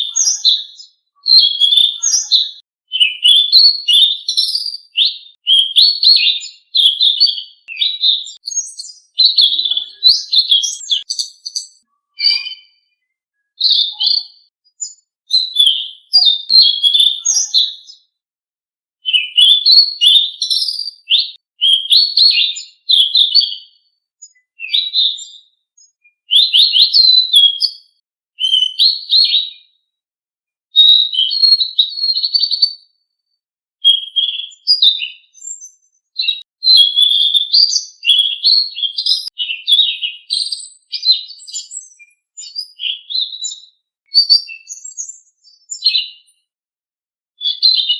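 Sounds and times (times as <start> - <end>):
songbird twittering: 0.0 - 18.1
high-pitched bird chips: 6.1 - 12.8, 13.6 - 18.0.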